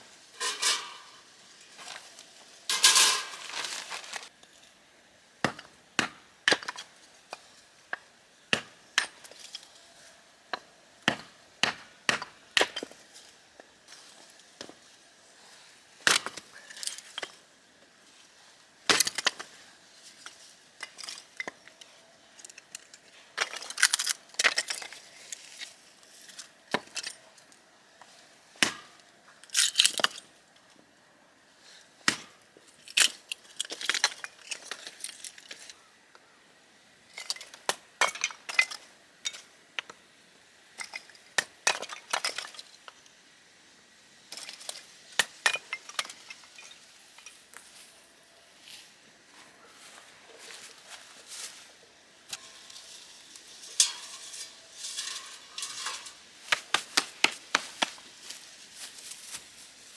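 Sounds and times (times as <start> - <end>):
hard objects snapping and clinking: 52.3 - 58.0.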